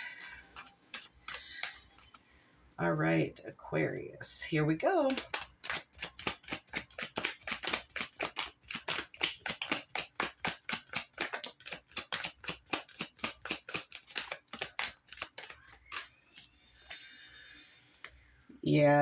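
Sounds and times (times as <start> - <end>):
cards being shuffled: 0.1 - 2.3, 5.1 - 17.2.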